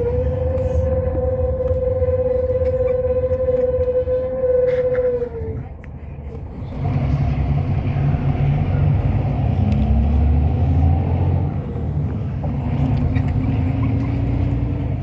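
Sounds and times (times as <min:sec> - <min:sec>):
bus engine rumble pulling away: 0:04.7 - 0:15.0.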